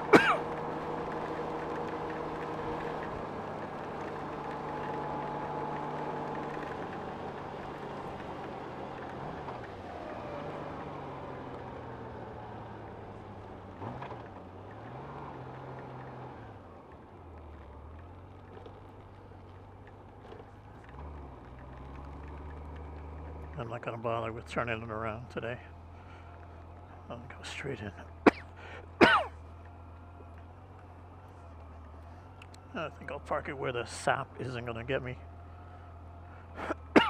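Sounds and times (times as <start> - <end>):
motorcycle engine running: 0.0 - 27.4
road noise: 0.0 - 37.0.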